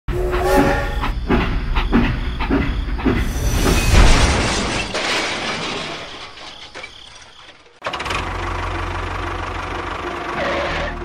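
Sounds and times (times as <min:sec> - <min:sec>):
toy train whistle: 0:00.1 - 0:01.1, 0:10.3 - 0:11.0
toy steam locomotive chuffing: 0:08.2 - 0:11.0.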